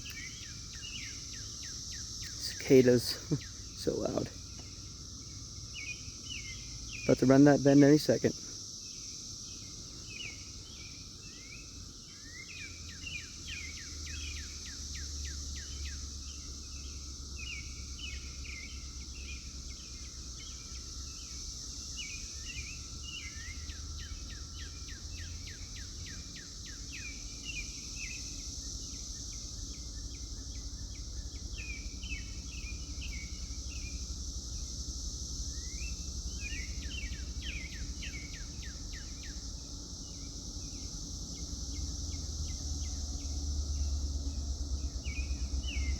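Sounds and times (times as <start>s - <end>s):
cicadas droning: 0.0s - 45.9s
birds chirping: 2.2s - 4.4s, 5.7s - 8.3s.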